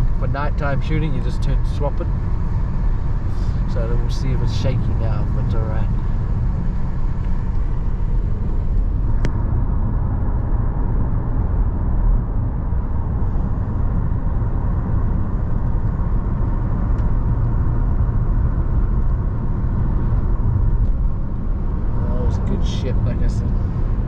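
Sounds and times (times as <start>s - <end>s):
car driving rumble: 0.0s - 24.0s.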